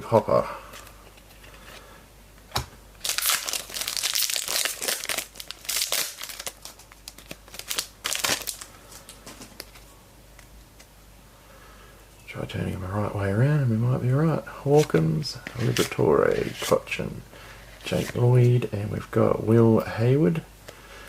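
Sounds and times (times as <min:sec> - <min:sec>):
card pack wrapper crinkling: 0:03.0 - 0:09.8.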